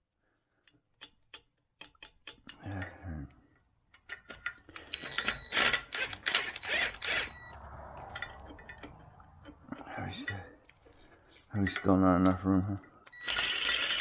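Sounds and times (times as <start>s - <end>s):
tools clacking and rattling: 3.9s - 7.1s, 8.0s - 13.2s.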